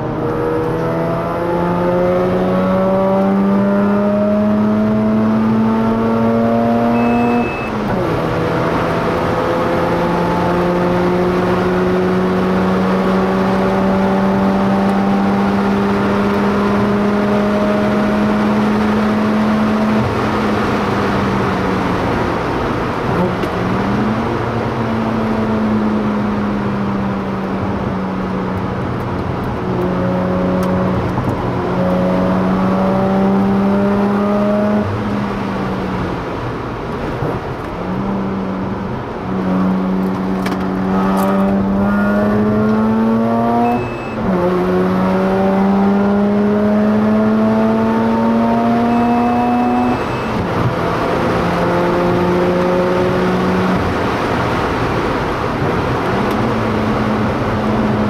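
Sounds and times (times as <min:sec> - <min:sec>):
rotary engine revving: 0:39.6 - 0:58.0.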